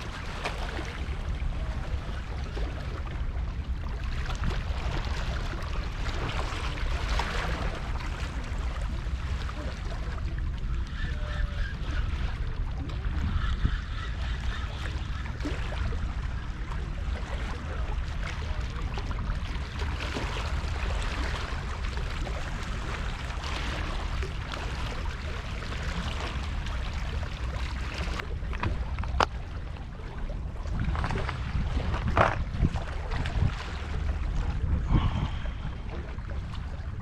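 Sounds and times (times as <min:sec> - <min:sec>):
waves: 0:00.0 - 0:37.0
wind on microphone: 0:00.0 - 0:37.0.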